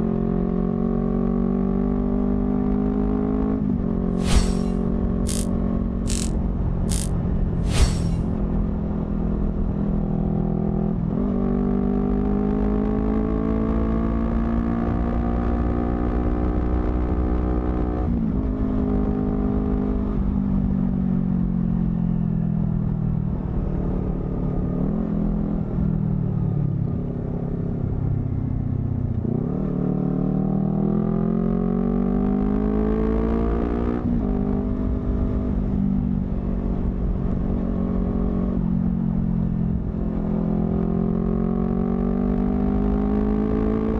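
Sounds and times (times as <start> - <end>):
motorcycle engine revving: 4.2 - 5.5, 6.1 - 8.3.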